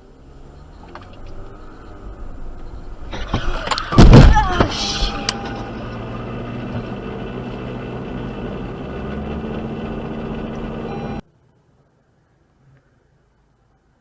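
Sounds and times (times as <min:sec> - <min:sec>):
car engine hum: 0:00.0 - 0:14.0
road noise: 0:00.0 - 0:14.0.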